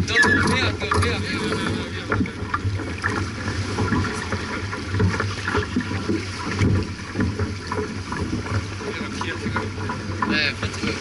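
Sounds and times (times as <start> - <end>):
knocks and splashes: 0.0 - 11.0
water rushing against hull: 0.0 - 11.0.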